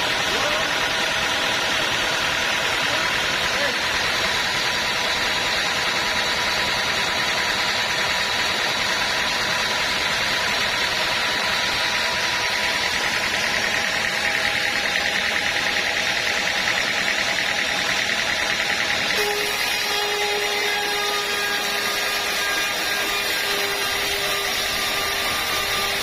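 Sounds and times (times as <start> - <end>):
sawmill machinery drone: 0.0 - 26.0.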